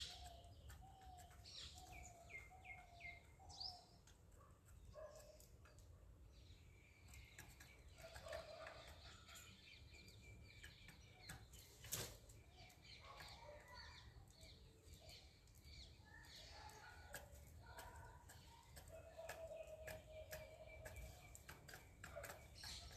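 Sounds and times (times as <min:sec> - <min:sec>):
faint birdsong: 0:00.0 - 0:22.9.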